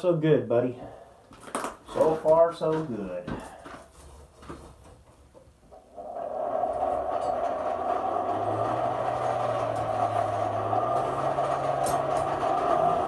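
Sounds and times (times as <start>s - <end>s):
forge roaring: 5.9s - 13.0s
low hum: 6.5s - 13.0s.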